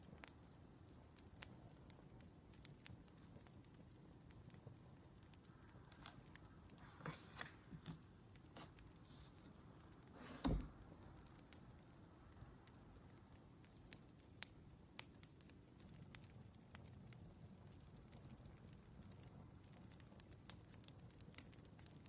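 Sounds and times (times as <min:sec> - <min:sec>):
wood fire crackling: 0:00.0 - 0:22.0
soft rustles: 0:05.9 - 0:11.2
dull thump: 0:10.2 - 0:10.7.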